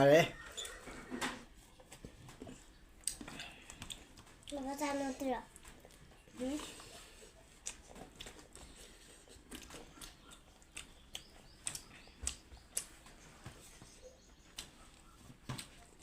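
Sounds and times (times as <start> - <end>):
chewing clicks and smacks: 2.9 - 4.7, 6.9 - 13.2, 14.5 - 16.0.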